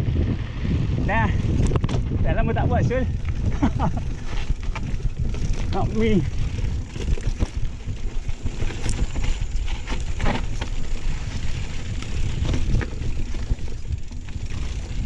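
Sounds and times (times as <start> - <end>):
bike tyres rumbling on dirt: 0.0 - 15.0
bike knocking and rattling: 1.1 - 15.0.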